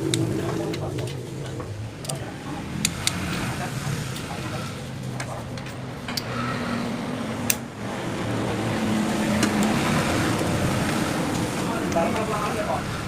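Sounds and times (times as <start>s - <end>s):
sharp clicks: 7.4s - 7.7s.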